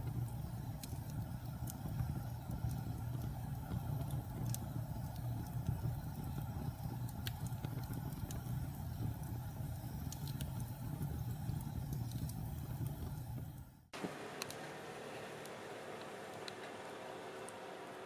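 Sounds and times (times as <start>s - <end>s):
fire flames rumbling: 0.0s - 13.9s
fire crackles: 0.0s - 18.0s.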